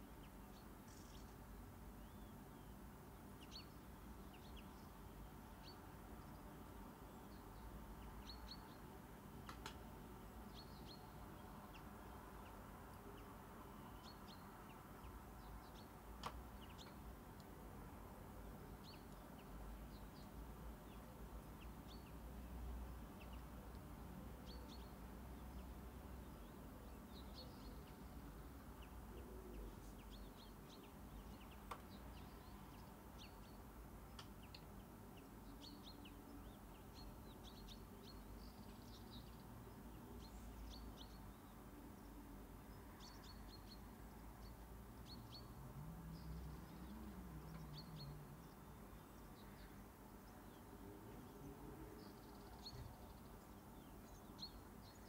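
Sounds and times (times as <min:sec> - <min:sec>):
faint bird chirps: 0:00.0 - 0:02.8
faint clicks: 0:09.4 - 0:09.8, 0:16.2 - 0:17.6, 0:31.5 - 0:32.0, 0:34.1 - 0:34.8.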